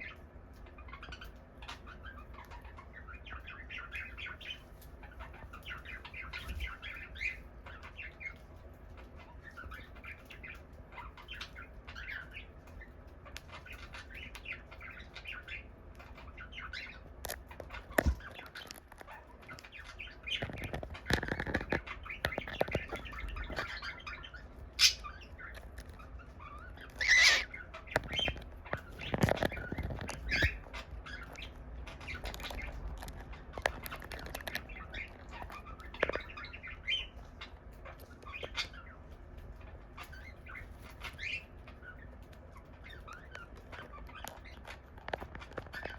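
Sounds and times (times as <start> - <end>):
cockatiel chirping: 0.0 - 39.0, 39.6 - 45.9
rustling noise: 20.3 - 23.8, 27.9 - 31.0.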